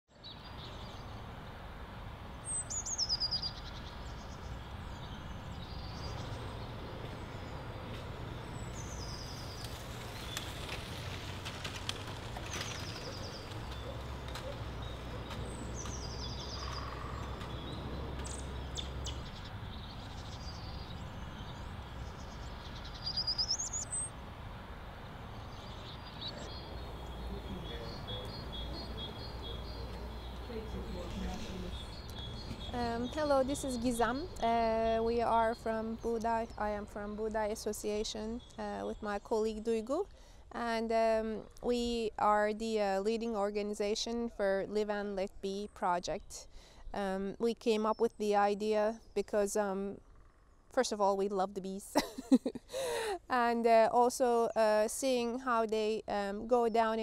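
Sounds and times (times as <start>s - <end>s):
small birds chirping: 0.1s - 1.6s, 2.3s - 24.2s, 25.0s - 42.3s.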